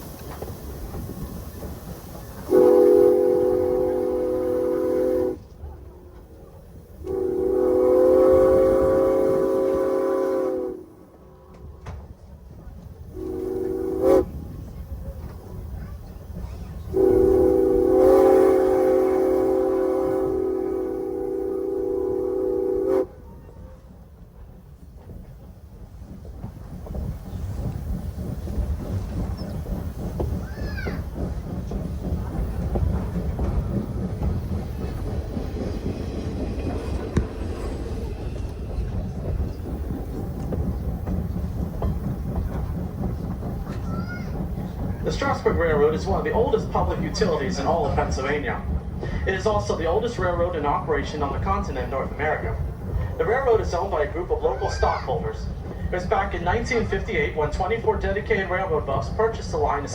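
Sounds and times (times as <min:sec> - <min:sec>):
train rumbling on rails: 0:00.0 - 0:59.9
steam whistle blasts: 0:02.5 - 0:05.5, 0:07.0 - 0:11.0, 0:13.2 - 0:14.3, 0:16.9 - 0:23.2
wheels knocking: 0:23.3 - 0:59.4.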